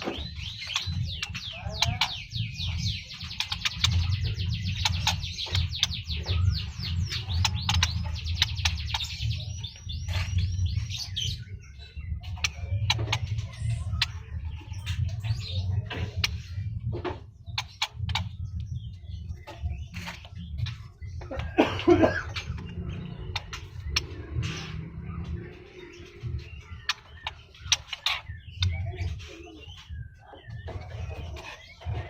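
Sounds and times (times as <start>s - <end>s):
bird singing rapid chirps: 0.0s - 32.0s
sharp bird clicks: 3.0s - 9.3s, 26.8s - 28.8s.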